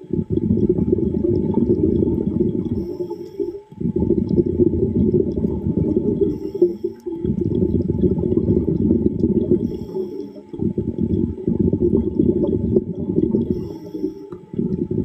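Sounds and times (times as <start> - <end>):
underwater air bubbles rumbling: 0.0 - 15.0.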